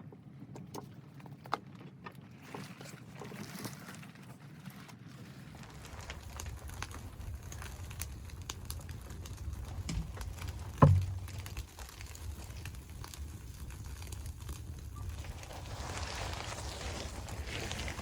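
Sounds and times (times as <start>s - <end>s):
low fire rumble: 5.3s - 18.0s
wood fire crackling: 5.4s - 18.0s
loud thump: 10.8s - 11.3s.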